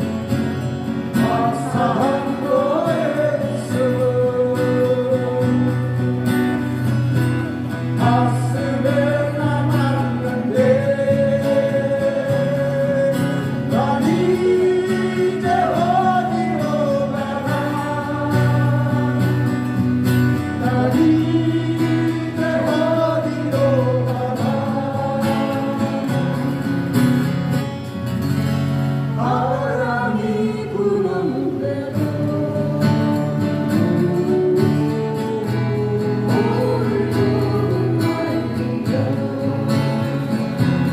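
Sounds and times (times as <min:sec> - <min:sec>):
acoustic guitars playing: 0:00.0 - 0:40.9
person singing: 0:29.2 - 0:40.9.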